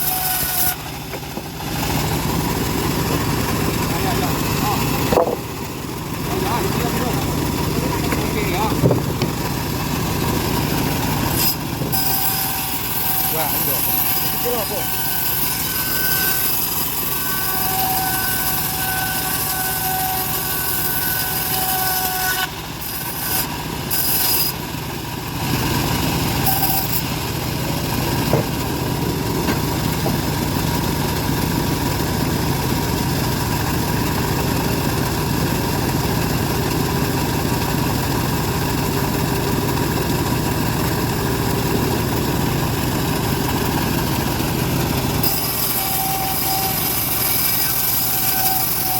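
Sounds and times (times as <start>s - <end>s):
bandsaw mill running: 0.0s - 48.9s.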